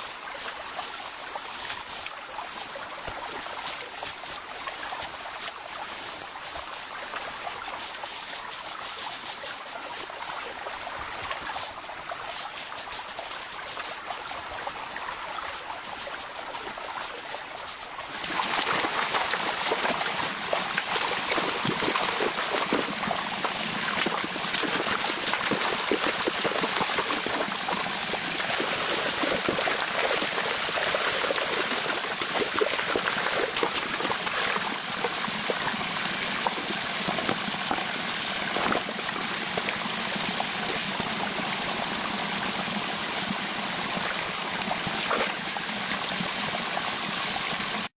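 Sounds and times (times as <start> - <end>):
rushing water: 0.0 - 47.9.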